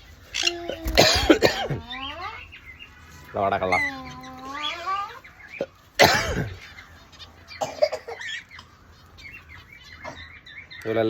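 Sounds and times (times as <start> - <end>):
parrot calling: 0.0 - 10.9
parrot screeching: 0.3 - 1.0, 1.7 - 2.5, 3.5 - 5.7.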